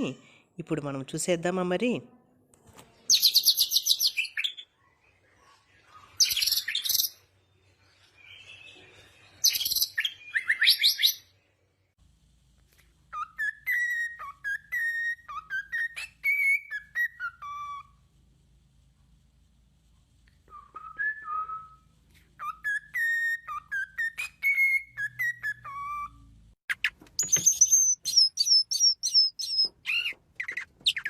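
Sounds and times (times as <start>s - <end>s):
bird chirping trills: 22.4s - 31.0s
bird whistled notes: 27.2s - 30.1s.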